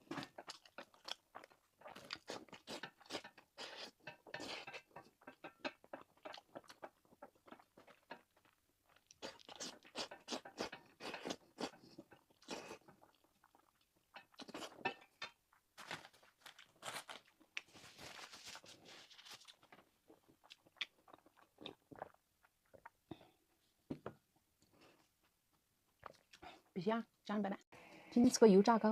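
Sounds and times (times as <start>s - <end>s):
person chewing crunchy food: 0.0s - 23.0s.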